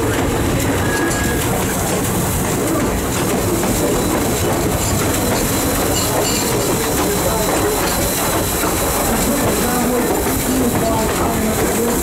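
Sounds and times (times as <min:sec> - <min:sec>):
steam train wheels rumbling and clicking: 0:00.0 - 0:12.0.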